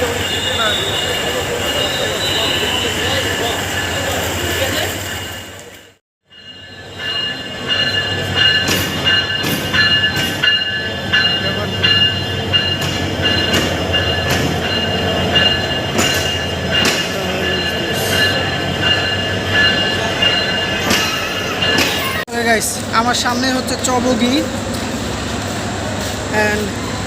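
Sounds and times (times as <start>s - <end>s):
train low rumble: 0.0s - 27.0s
clanks and knocks: 12.0s - 17.2s.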